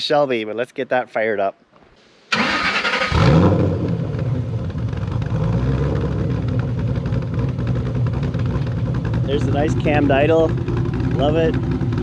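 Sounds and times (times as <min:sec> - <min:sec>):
car engine choppy idle: 0:04.0 - 0:12.0.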